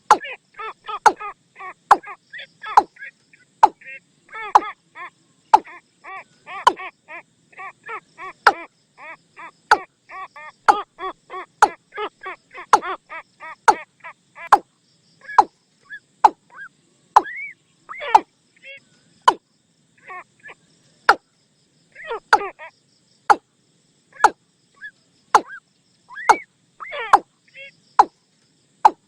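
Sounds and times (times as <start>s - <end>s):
bird decoy call: 0.0s - 14.6s, 15.2s - 19.4s, 21.9s - 22.7s, 24.1s - 28.1s.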